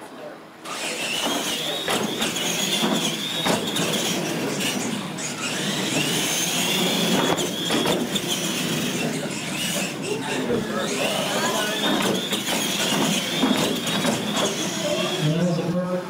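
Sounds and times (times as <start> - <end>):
toy truck motor whine: 0.6 - 15.6
tyre noise on concrete: 1.2 - 9.9, 11.4 - 15.0
knocks: 1.3 - 4.1, 11.9 - 14.6.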